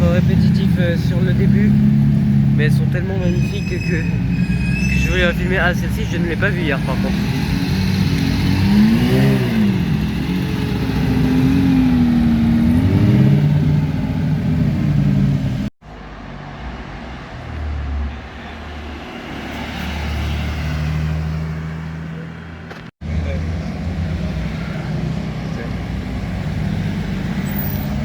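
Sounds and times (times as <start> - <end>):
rally car engine revving: 5.7 - 15.7.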